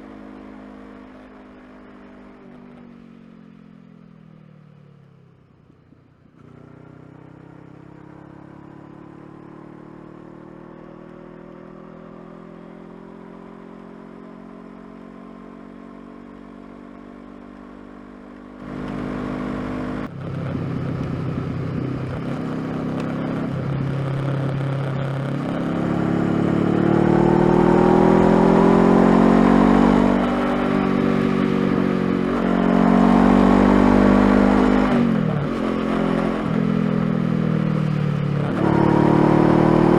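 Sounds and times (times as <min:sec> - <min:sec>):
motorcycle engine revving: 0:18.0 - 0:39.9.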